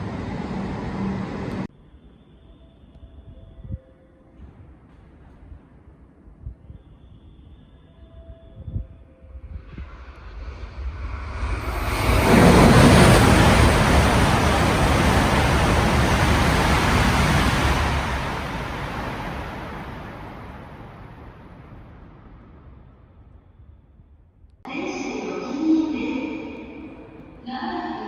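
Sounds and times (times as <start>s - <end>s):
high-speed train passing: 0.0s - 1.7s, 9.5s - 23.0s.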